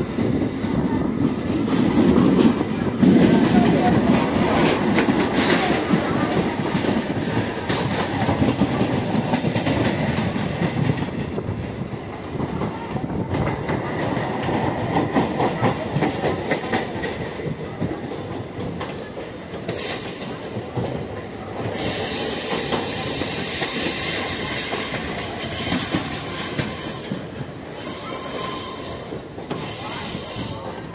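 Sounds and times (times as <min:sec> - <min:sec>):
train rumbling along track: 0:00.0 - 0:30.9.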